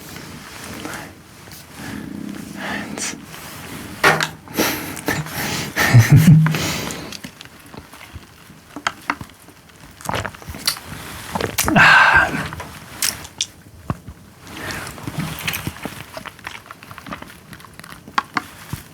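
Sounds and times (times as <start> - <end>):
slurps and mouth noises: 1.6 - 7.3.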